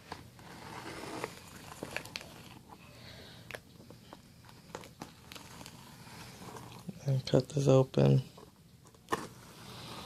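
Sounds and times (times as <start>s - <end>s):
cardboard box rustling and scraping: 0.1s - 2.7s.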